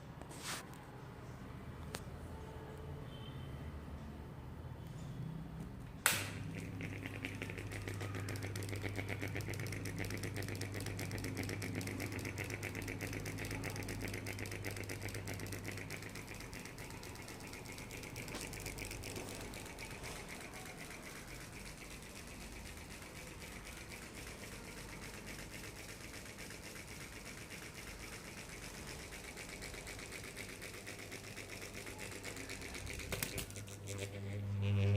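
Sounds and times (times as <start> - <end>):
ceiling fan clicking rattle: 6.0 - 34.4
low motor hum: 6.4 - 25.0, 25.7 - 34.9.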